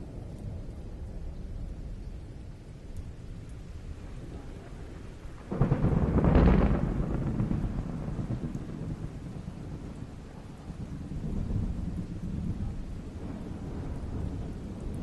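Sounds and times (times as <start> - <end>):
low thunder rumble: 0.0 - 15.0
thunderclap crack: 5.4 - 9.8.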